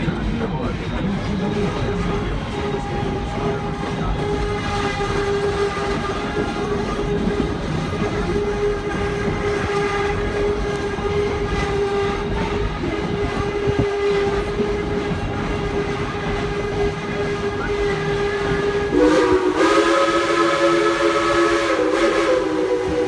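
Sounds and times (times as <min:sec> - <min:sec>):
train cars rumbling: 0:00.0 - 0:23.0
held steady tone: 0:18.9 - 0:23.0.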